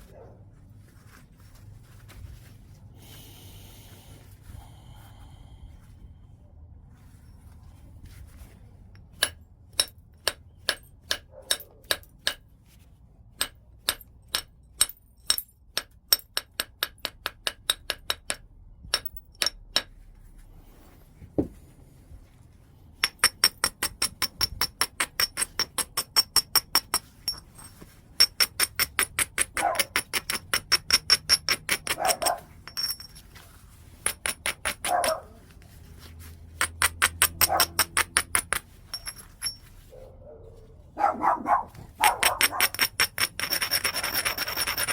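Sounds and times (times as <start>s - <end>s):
stone striking stone: 28.2s - 33.2s, 34.0s - 35.2s, 36.6s - 39.6s, 42.0s - 44.9s.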